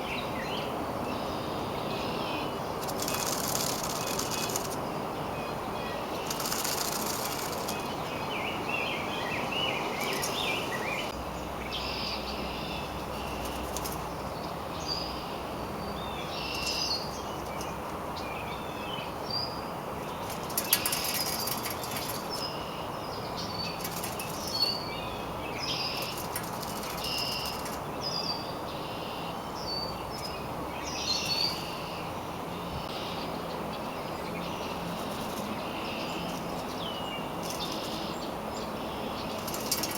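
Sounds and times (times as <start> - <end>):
rustles like wings flapping: 2.8 - 4.8, 6.2 - 8.2, 9.9 - 10.8, 13.1 - 14.1, 20.0 - 22.6, 23.6 - 24.9, 25.8 - 28.0, 34.9 - 38.2, 39.2 - 39.9
bird chirps: 11.8 - 39.9.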